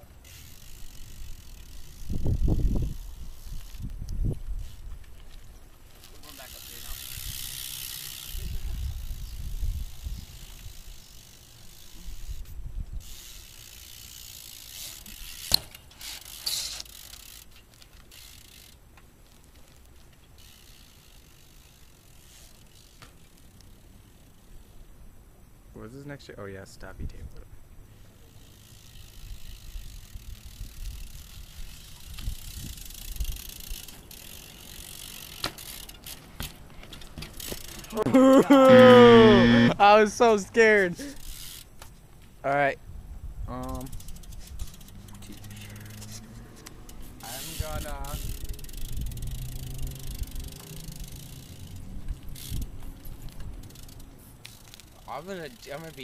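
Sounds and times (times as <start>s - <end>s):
bike hub ticking: 0.0s - 24.5s, 28.0s - 42.1s, 43.5s - 56.0s
bike rolling on concrete: 0.0s - 56.0s
person exclaiming loudly: 37.9s - 40.1s.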